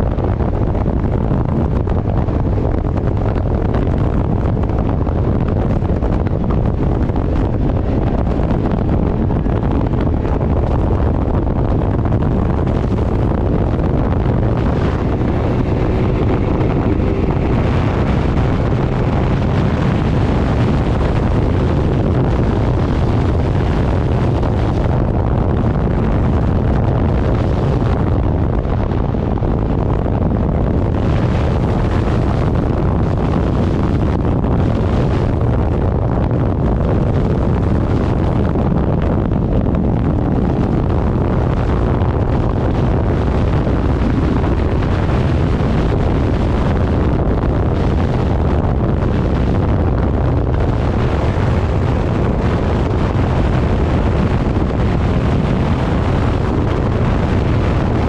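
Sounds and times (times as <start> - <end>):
motorcycle engine: 0.0 - 35.9
road noise: 0.0 - 58.0
wind buffeting microphone: 0.0 - 58.0.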